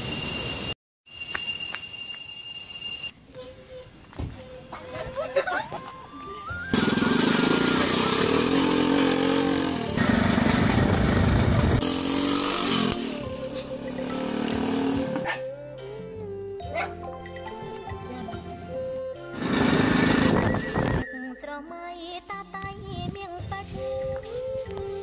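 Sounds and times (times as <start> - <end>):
motorbike engine running: 6.7 - 15.4, 19.4 - 21.0
background music sustained notes: 12.3 - 22.2.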